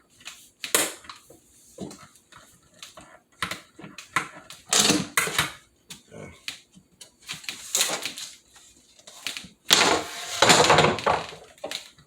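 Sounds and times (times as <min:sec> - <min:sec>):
window blind clicks and rattles: 0:09.1 - 0:12.0
blind clattering into place: 0:09.2 - 0:11.8.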